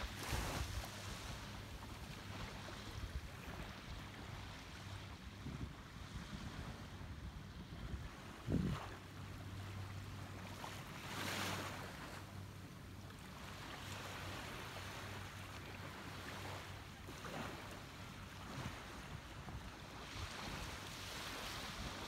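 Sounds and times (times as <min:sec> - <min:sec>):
wind on microphone: 0:00.0 - 0:04.3, 0:05.0 - 0:09.0
sea waves washing onto beach: 0:00.0 - 0:05.1, 0:13.2 - 0:22.0.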